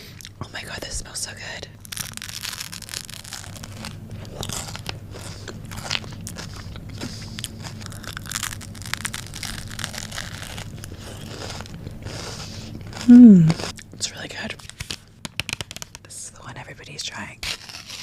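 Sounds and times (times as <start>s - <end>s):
chocolate bar crunching: 1.8s - 16.0s, 17.4s - 18.0s
low hum: 13.1s - 13.6s.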